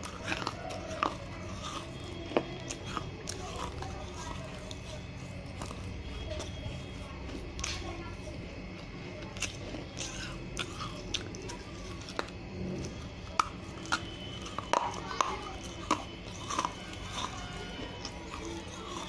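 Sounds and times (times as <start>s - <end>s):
crunching clay pot pieces: 0.0s - 19.0s.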